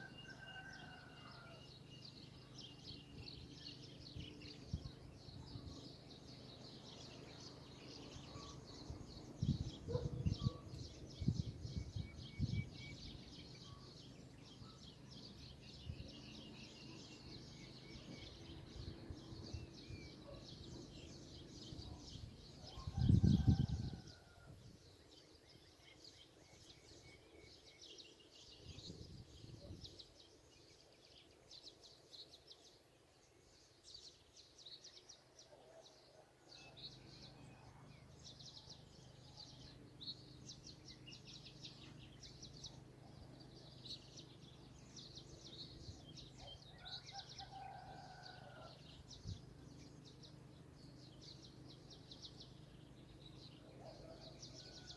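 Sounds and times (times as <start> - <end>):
birds chirping: 0.0 - 23.6.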